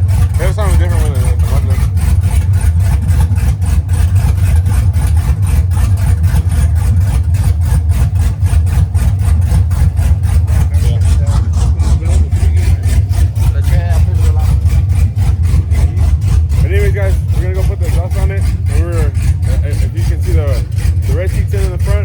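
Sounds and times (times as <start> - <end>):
loud choppy engine running: 0.0 - 22.0.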